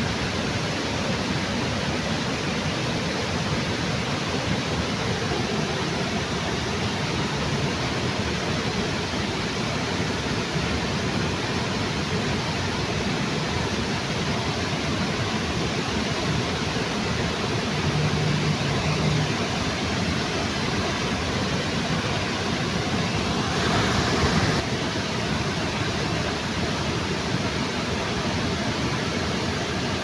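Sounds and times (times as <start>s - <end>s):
waterfall rushing: 14.6s - 30.0s
low hum: 17.6s - 19.9s.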